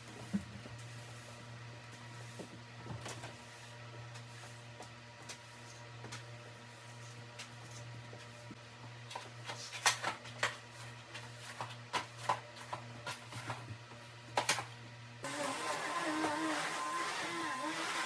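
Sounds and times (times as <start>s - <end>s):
vacuum cleaner running: 15.2s - 18.0s.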